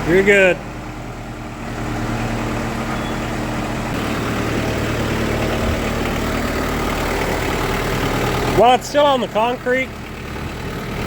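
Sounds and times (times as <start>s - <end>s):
backhoe diesel engine running: 0.0s - 11.0s.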